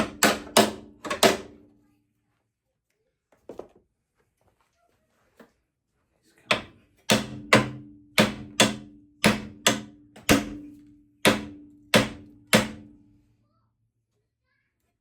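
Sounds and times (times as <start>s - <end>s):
hammer striking steel: 0.0s - 1.5s, 6.5s - 12.9s.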